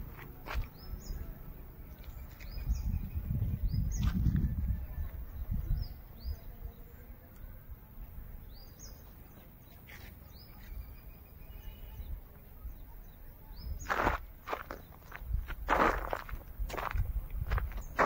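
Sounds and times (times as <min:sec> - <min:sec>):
small birds chirping: 0:00.0 - 0:18.0
wind rumble on microphone: 0:02.0 - 0:06.9, 0:11.9 - 0:18.0.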